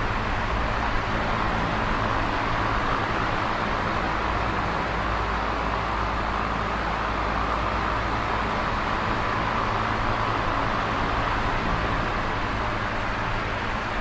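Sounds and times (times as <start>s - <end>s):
electric fan running: 0.0s - 14.0s.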